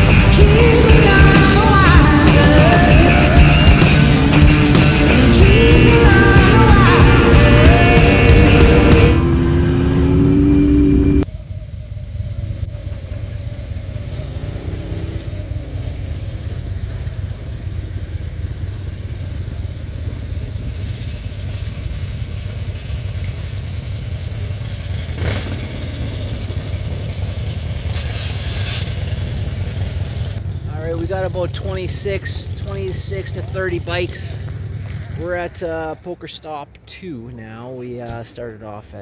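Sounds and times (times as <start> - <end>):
rock music: 0.0 - 11.2
motorcycle engines rumbling: 0.0 - 39.0.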